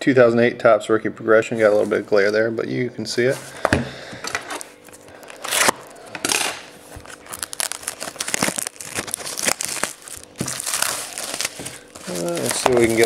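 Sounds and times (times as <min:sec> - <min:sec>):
plastic wrapping crinkling and tearing: 0:04.6 - 0:13.0.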